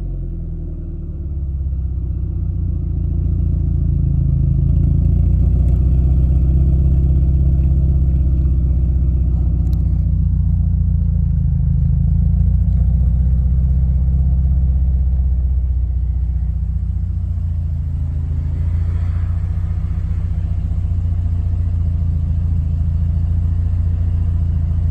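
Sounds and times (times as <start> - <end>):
car engine rumbling: 0.0 - 24.9.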